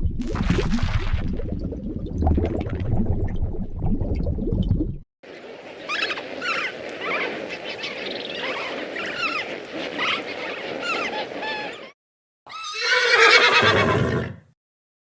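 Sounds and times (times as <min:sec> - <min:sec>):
low rushing bubbling noise: 0:00.0 - 0:05.0
high quavering animal calls: 0:05.4 - 0:14.4.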